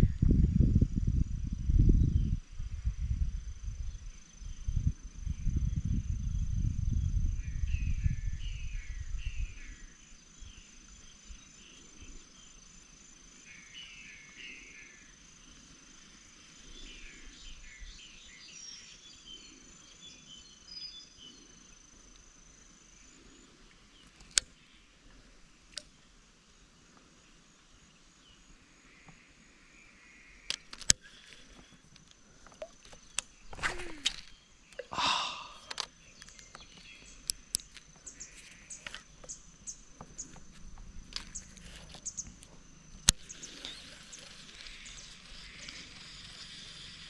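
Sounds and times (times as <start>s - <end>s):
high-pitched insect trill: 0.0s - 24.9s, 27.7s - 47.0s
birds chirping: 30.2s - 46.3s.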